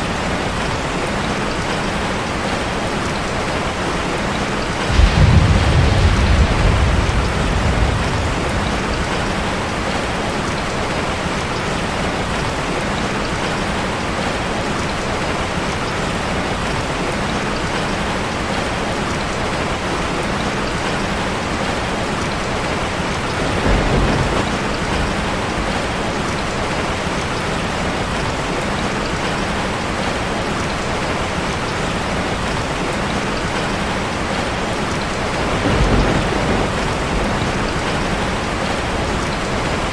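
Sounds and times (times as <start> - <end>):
heavy rain on a metal roof: 0.0 - 39.9
thunder rumbling: 4.4 - 11.2, 22.4 - 28.3, 34.4 - 39.9.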